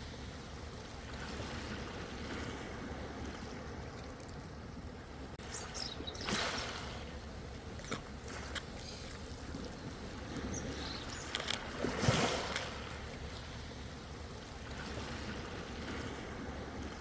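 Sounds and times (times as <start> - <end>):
ocean waves washing in: 0.0 - 17.0
water splashing clicks: 11.0 - 11.8.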